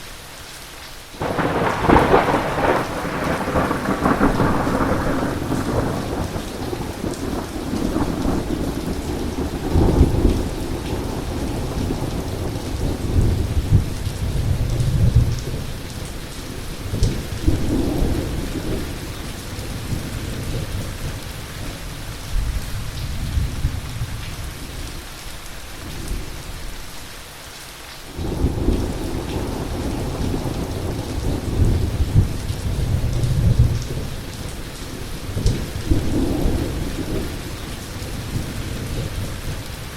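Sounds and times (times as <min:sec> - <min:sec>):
heavy rain falling: 0:00.0 - 0:39.9
thunder rolling: 0:01.2 - 0:15.7.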